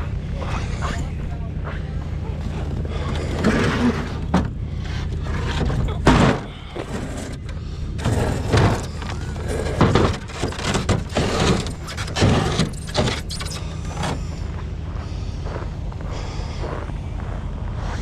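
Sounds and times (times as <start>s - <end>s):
motor idling: 0.0s - 18.0s
knocks and thuds: 2.6s - 4.6s, 5.4s - 7.4s, 8.0s - 14.2s.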